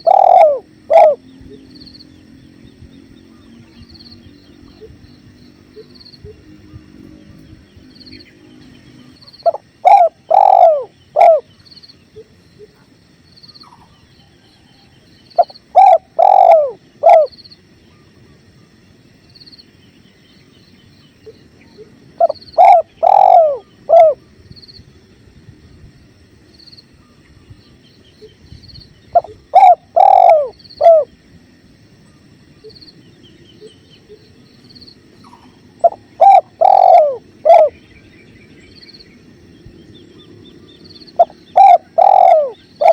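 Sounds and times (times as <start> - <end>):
dove cooing: 0.0 - 1.8, 8.6 - 12.9, 15.3 - 18.1, 21.2 - 24.4, 29.1 - 31.1, 35.2 - 37.9, 41.1 - 42.9.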